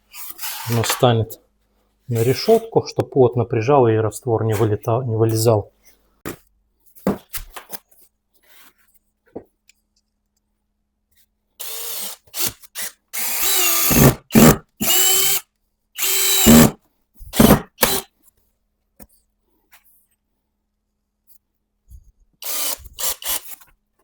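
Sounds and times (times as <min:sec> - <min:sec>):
electric drill whining: 0:11.6 - 0:15.4, 0:16.0 - 0:16.8, 0:17.4 - 0:18.0, 0:22.4 - 0:23.6.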